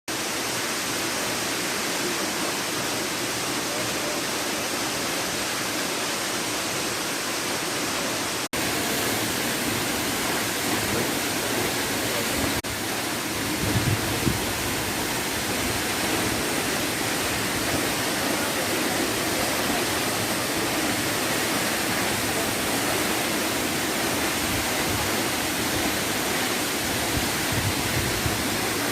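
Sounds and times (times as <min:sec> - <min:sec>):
waterfall rushing and splashing: 0:00.1 - 0:28.9.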